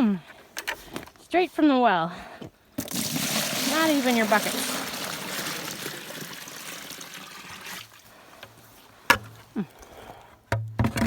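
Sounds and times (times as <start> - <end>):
water running into a tub: 2.8 - 8.1.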